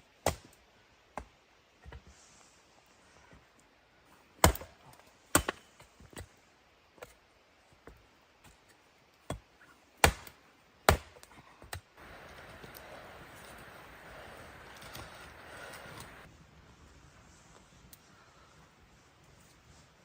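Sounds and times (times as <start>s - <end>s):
sharp chopping strikes: 10.0s - 10.3s, 10.9s - 11.2s.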